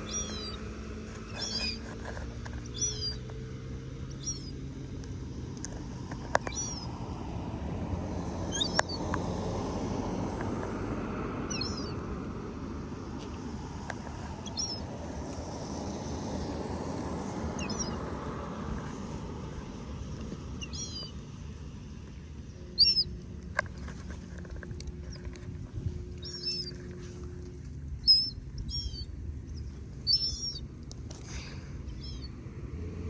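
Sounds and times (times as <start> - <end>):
small bird chirping: 0.0 - 4.8, 5.6 - 7.0, 8.4 - 9.4, 11.4 - 12.1, 13.8 - 21.6, 22.4 - 23.2, 26.0 - 27.3, 28.0 - 30.8, 31.4 - 32.4
low background rumble: 0.0 - 33.0.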